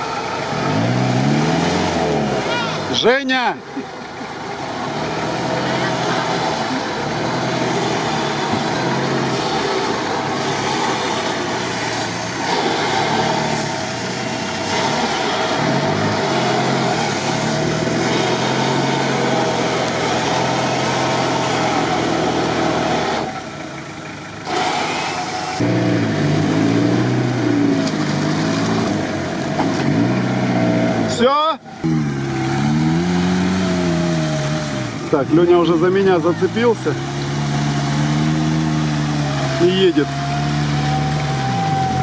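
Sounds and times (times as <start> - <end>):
off-road engines revving: 0.0 - 42.0.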